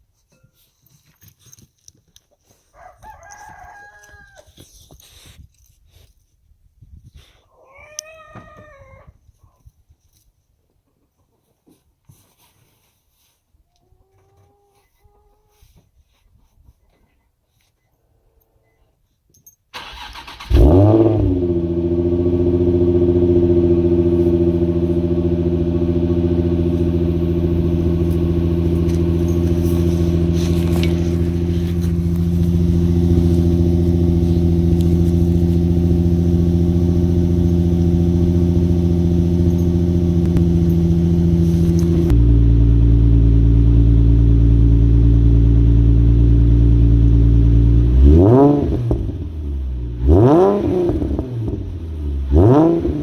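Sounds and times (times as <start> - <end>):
car engine cranking: 19.7 - 43.0
car engine idling: 19.9 - 48.2.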